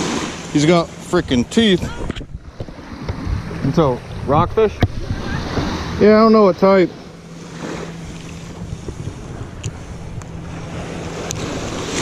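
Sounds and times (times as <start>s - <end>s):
seawater washing: 0.0s - 12.0s
steady low hum: 0.0s - 12.0s
wind buffeting the microphone: 1.2s - 6.2s, 7.6s - 12.0s.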